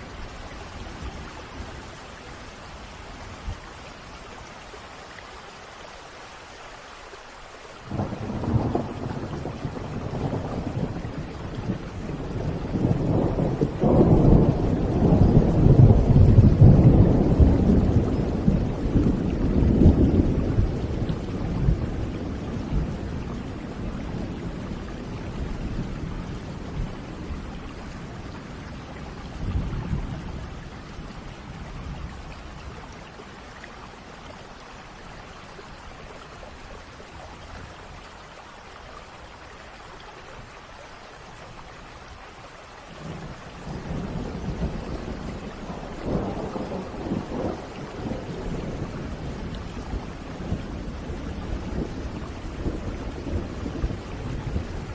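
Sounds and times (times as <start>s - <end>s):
rain falling: 0.0s - 54.9s
rolling thunder: 7.9s - 32.9s, 43.0s - 54.9s.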